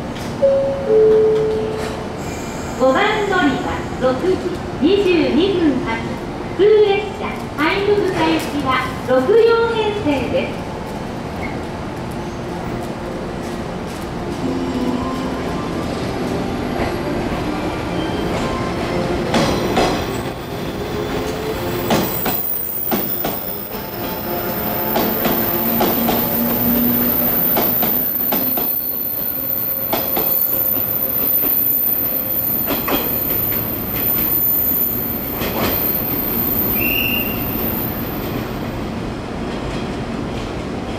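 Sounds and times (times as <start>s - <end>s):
electric train passing: 11.8s - 40.8s.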